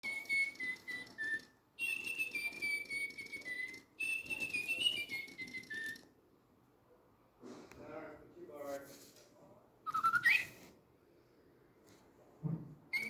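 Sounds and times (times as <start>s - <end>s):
toy bird electronic tweeting: 0.0s - 6.1s, 9.9s - 10.6s.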